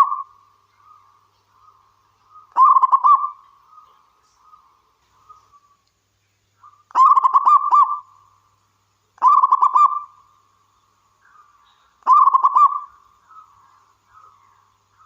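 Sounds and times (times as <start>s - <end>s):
dove cooing: 2.3s - 3.9s, 6.6s - 8.1s, 9.2s - 10.1s, 12.0s - 13.5s.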